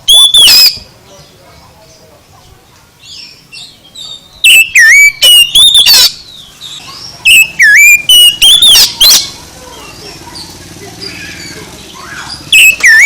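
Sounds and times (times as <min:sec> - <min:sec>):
bird singing whistled phrases: 0:00.1 - 0:00.8, 0:03.2 - 0:09.4, 0:12.0 - 0:13.0.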